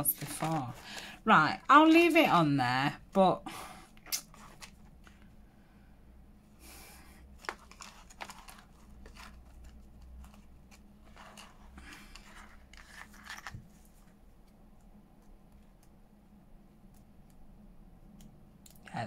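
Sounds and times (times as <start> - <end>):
paper rustling: 0.0 - 2.2, 4.2 - 5.3, 7.4 - 14.2
steady low hum: 0.0 - 19.0.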